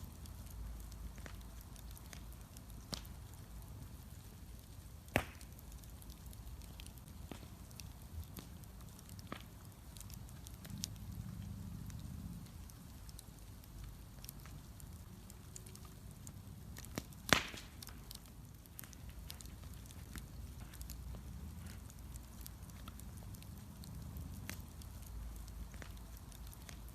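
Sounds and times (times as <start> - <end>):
bonfire rumbling and crackling: 0.0 - 26.9
loud sharp pops: 5.1 - 5.6, 17.0 - 18.0.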